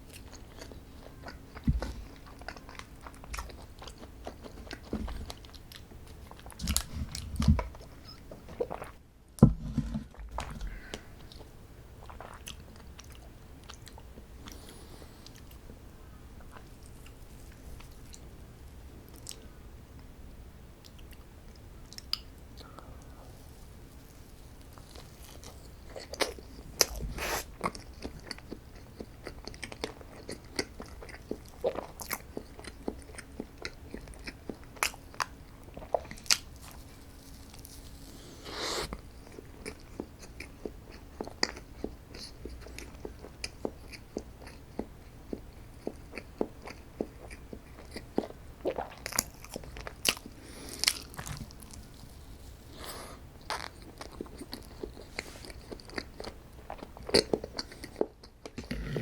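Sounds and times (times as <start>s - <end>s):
person biting and chewing: 0.1s - 8.9s, 45.8s - 52.1s.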